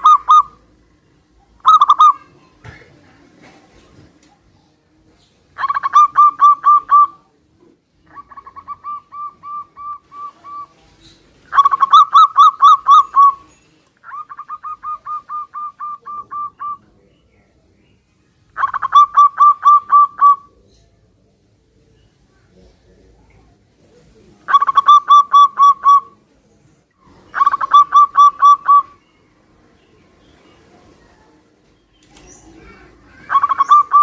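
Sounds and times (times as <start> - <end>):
doves cooing: 0.0 - 0.8, 1.5 - 2.3, 5.6 - 7.3, 8.0 - 17.0, 18.6 - 20.7, 24.0 - 26.2, 27.0 - 29.0, 32.0 - 34.0.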